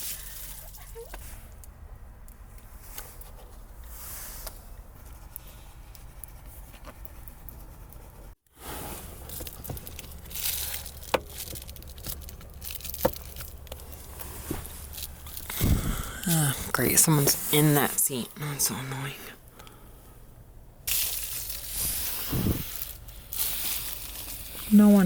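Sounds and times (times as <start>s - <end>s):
low steady rumble: 0.0s - 25.0s
rustling and crinkling handling: 2.4s - 18.2s, 20.9s - 25.0s.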